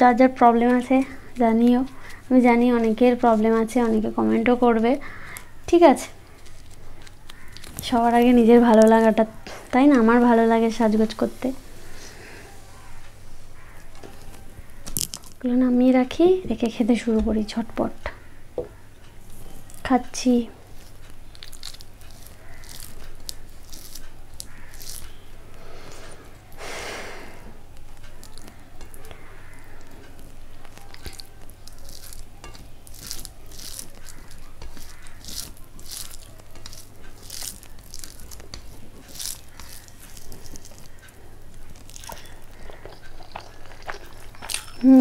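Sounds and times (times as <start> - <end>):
person chewing with wet mouth clicks: 20.7 - 26.6, 27.7 - 44.9.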